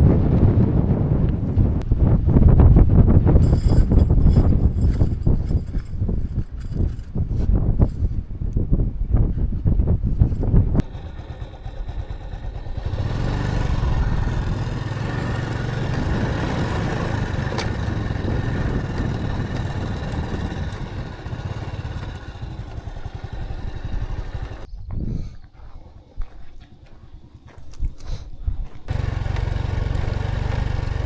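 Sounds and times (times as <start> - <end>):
motorcycle engine running: 10.8 - 24.7, 28.9 - 31.0.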